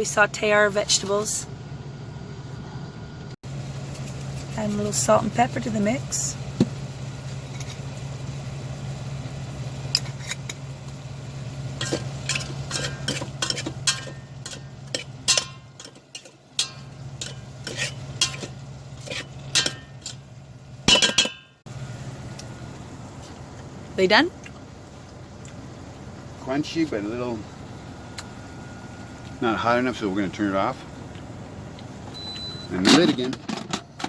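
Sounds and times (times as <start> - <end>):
steady low hum: 0.0 - 34.0
vegetables sauteing: 3.4 - 21.1, 21.7 - 32.8
utensil clinking and scraping pot: 7.3 - 8.0, 9.9 - 10.6, 11.7 - 20.3, 20.9 - 21.6.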